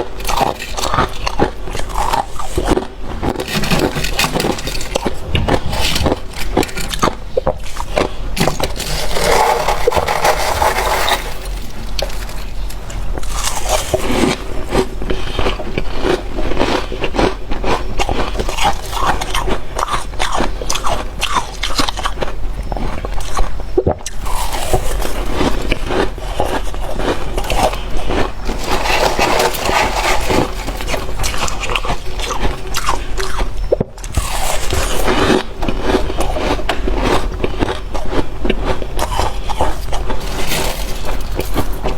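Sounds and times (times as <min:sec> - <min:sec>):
frost crunching in mouth: 0:00.2 - 0:22.3, 0:23.0 - 0:41.9
frost scraping: 0:03.4 - 0:14.6, 0:28.4 - 0:32.2, 0:39.7 - 0:41.9.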